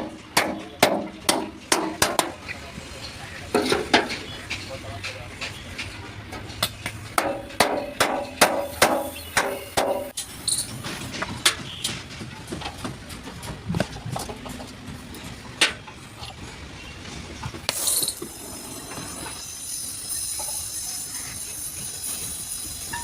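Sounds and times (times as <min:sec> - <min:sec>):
metallic knocks on sheet metal: 0:00.0 - 0:02.4, 0:07.2 - 0:10.2.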